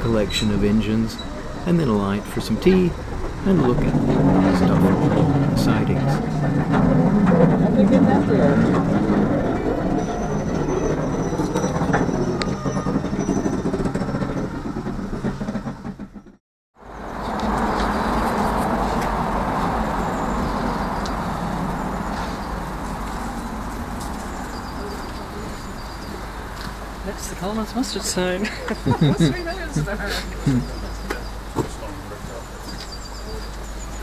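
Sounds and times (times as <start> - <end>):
train rumbling on track: 0.0 - 34.0
steady rushing noise: 1.6 - 9.9.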